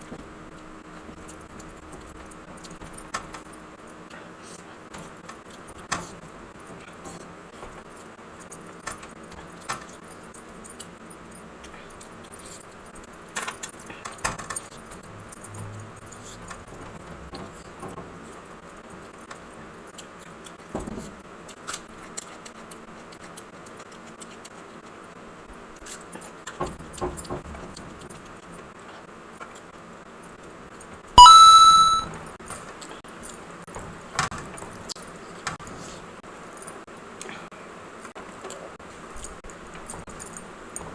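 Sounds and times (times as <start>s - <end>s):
short loud ringing tone: 31.2s - 32.1s.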